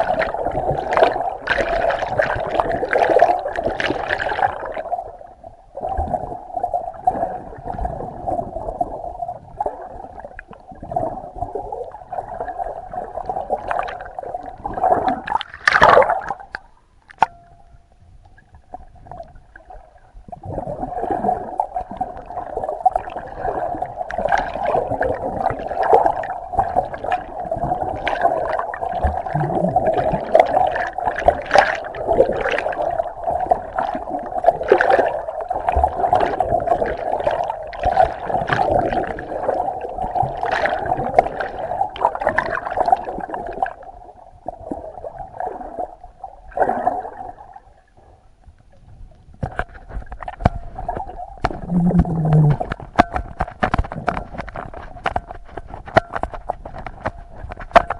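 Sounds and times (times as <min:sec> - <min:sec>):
muffled water sloshing and gurgling: 0:00.0 - 0:57.9
water surge: 0:13.7 - 0:16.6.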